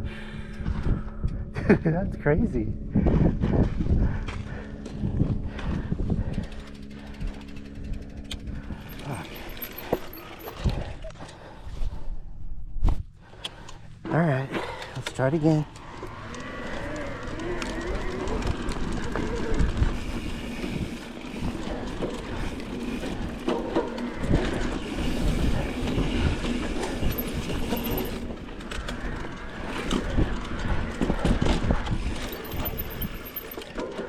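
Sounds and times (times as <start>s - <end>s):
low rumble: 2.6s - 13.3s
bike frame rattling and clattering: 6.2s - 11.0s, 21.7s - 29.2s, 32.0s - 34.0s.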